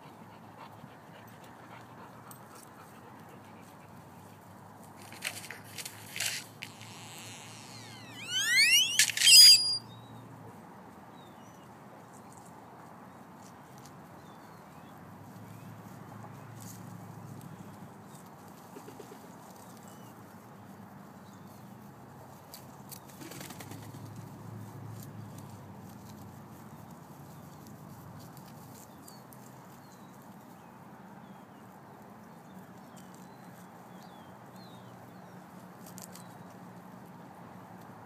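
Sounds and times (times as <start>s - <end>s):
background hum: 0.0s - 10.0s
wing flaps: 5.0s - 9.8s, 23.2s - 24.0s
sharp clicks: 5.1s - 9.8s
high bird chirps: 6.7s - 9.9s.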